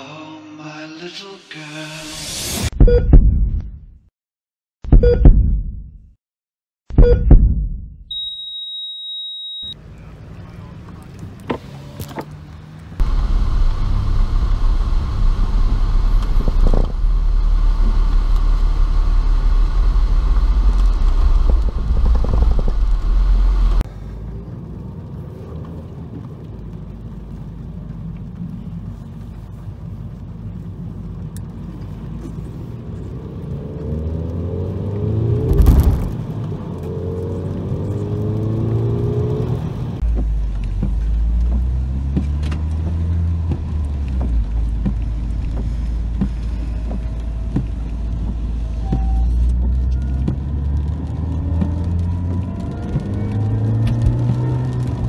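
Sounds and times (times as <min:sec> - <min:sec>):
sharp loud thump: 0:06.9 - 0:08.0, 0:35.5 - 0:36.3
car engine rumbling: 0:09.8 - 0:55.0
car accelerating: 0:32.3 - 0:45.6, 0:49.4 - 0:55.0.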